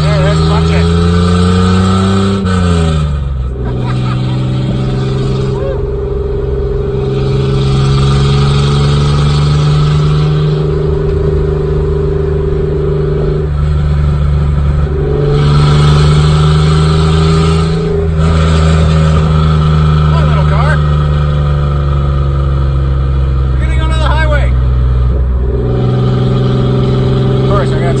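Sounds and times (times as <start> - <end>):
truck engine accelerating: 0.0 - 28.0.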